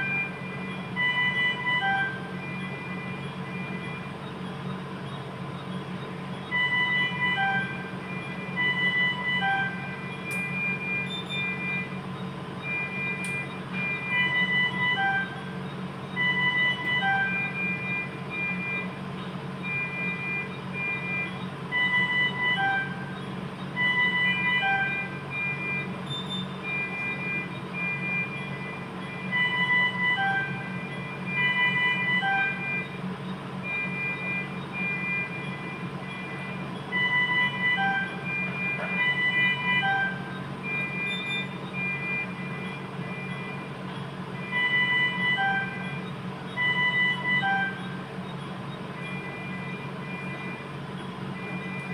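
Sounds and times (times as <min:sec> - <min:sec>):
electronic beeping melody: 0:00.0 - 0:04.4, 0:06.4 - 0:12.0, 0:12.6 - 0:19.0, 0:19.6 - 0:33.0, 0:33.6 - 0:43.8, 0:44.4 - 0:50.7, 0:51.4 - 0:51.9.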